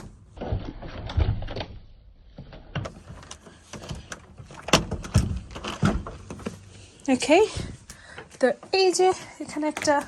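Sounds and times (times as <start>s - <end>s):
low thumps and rustling: 0.0s - 8.0s.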